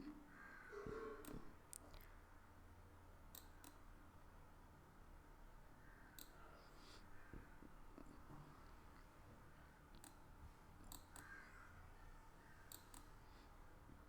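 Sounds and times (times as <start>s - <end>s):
low room hum: 0.0s - 14.0s
computer mouse clicks: 1.2s - 2.1s, 3.3s - 3.8s, 6.1s - 6.4s, 10.0s - 11.4s, 12.6s - 13.2s.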